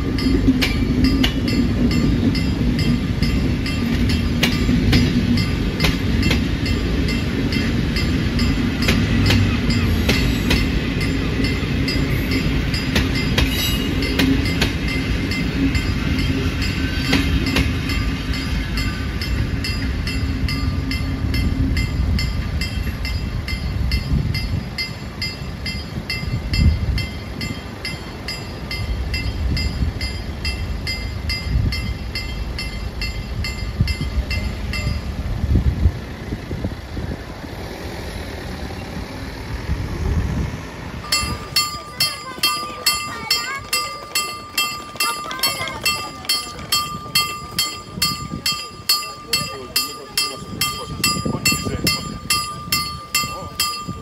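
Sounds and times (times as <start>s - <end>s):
train carriages rumbling: 0.0s - 54.0s.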